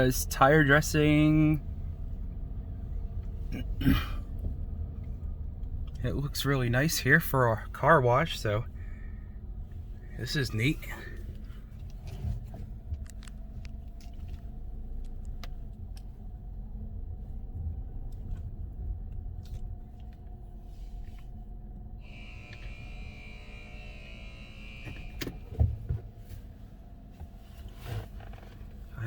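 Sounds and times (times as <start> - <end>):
car wash equipment hiss and whine: 0.0 - 3.0, 6.1 - 12.8, 19.4 - 29.0
car engine rumble: 0.0 - 29.0.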